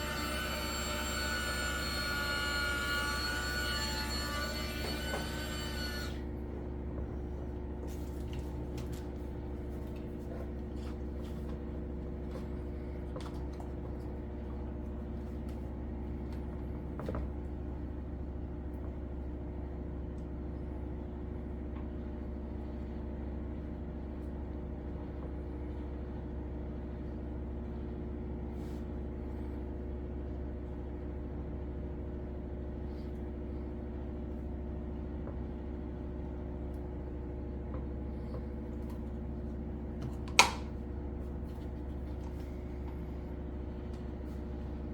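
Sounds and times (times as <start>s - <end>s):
electric motor hum: 0.0s - 7.2s.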